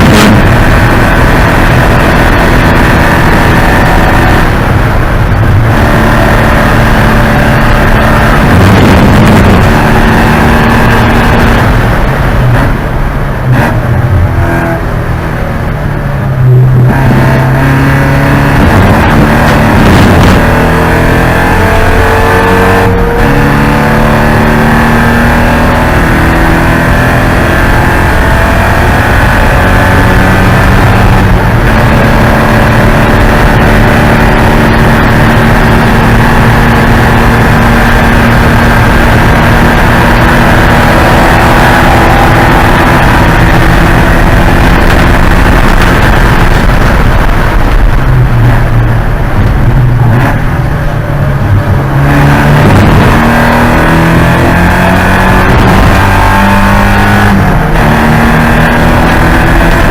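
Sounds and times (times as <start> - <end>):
race car engine accelerating: 0.0 - 59.9.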